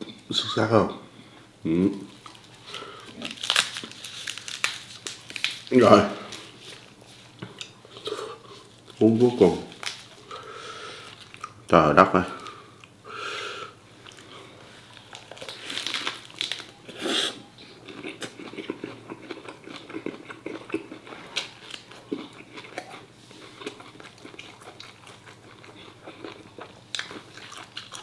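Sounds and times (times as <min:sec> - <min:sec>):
person chewing and biting: 0:02.1 - 0:05.7, 0:14.0 - 0:28.0.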